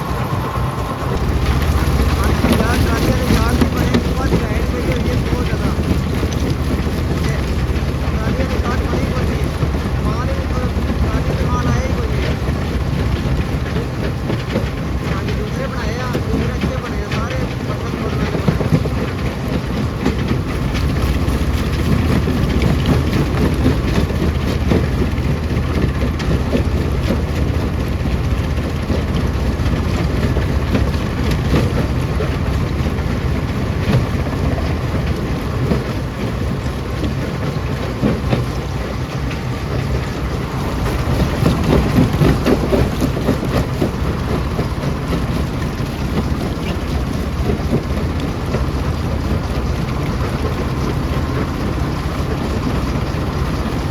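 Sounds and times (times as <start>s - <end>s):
stone crusher droning: 0.0s - 53.9s
rock rattling and knocking: 16.1s - 53.9s.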